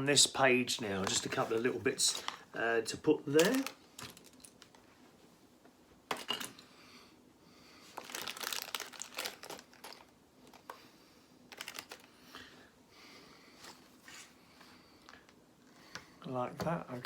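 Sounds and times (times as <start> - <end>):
crinkly rustles: 0.8 - 2.5, 3.3 - 5.0, 7.8 - 10.8, 11.5 - 12.2.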